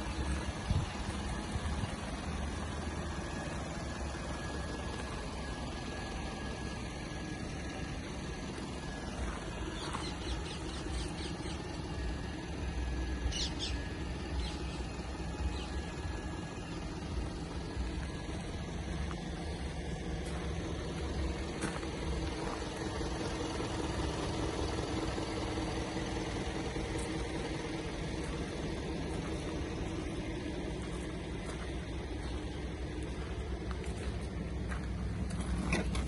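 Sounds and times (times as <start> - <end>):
truck diesel engine idling: 0.0 - 36.0
birds chirping: 7.9 - 33.7.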